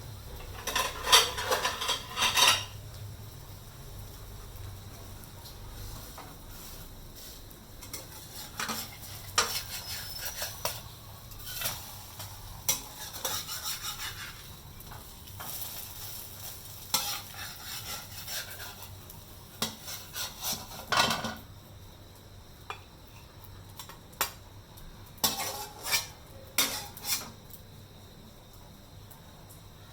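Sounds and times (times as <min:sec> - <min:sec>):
faint frying sizzle: 0:00.0 - 0:29.9
metal utensil scraping a pan: 0:00.4 - 0:02.8, 0:07.8 - 0:14.6, 0:15.4 - 0:19.0, 0:19.6 - 0:21.4, 0:25.2 - 0:27.4.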